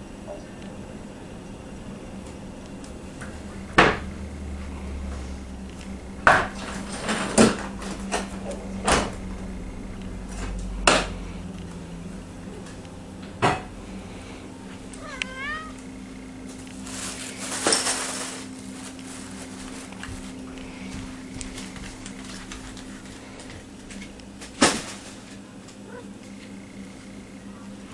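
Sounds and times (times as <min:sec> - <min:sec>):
cat meowing: 0:15.0 - 0:15.8.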